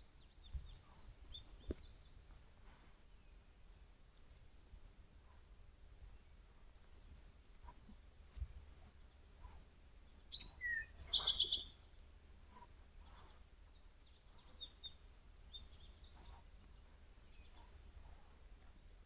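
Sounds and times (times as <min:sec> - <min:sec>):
birds calling: 0:08.8 - 0:12.0, 0:13.0 - 0:17.9.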